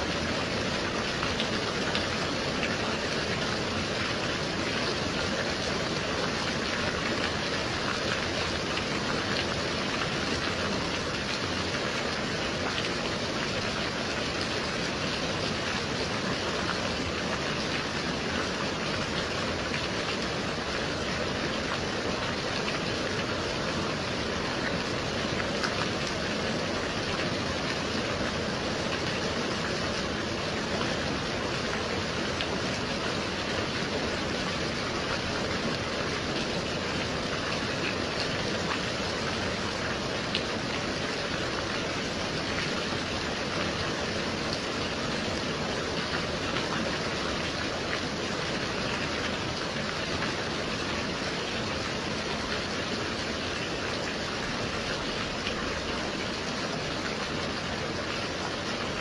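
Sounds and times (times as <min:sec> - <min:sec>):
gentle rain falling: 0:00.0 - 0:59.0.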